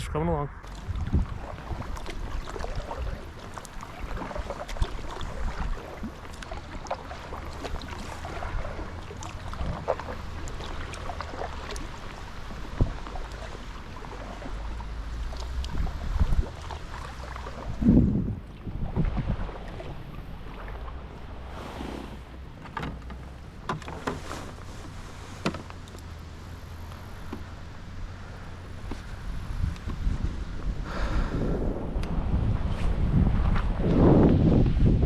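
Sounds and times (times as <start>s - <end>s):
wind buffeting microphone: 0.0s - 22.6s, 26.1s - 35.0s
water lapping around kayak: 0.6s - 35.0s
knocks against hull: 22.6s - 24.2s, 25.4s - 25.8s.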